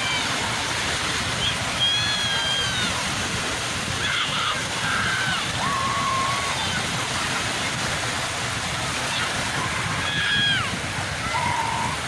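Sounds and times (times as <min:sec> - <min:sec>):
sea surf washing on shore: 0:00.0 - 0:12.0.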